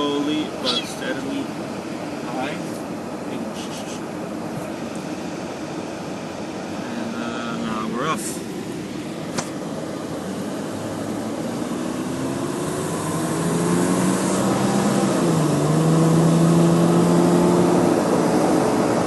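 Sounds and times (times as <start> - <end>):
car engine accelerating: 9.3 - 19.0.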